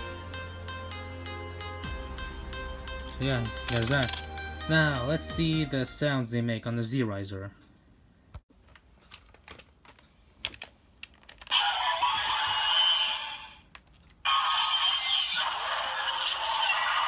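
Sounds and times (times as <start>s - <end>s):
toy electronic sound effects: 11.5s - 13.7s, 14.3s - 17.0s.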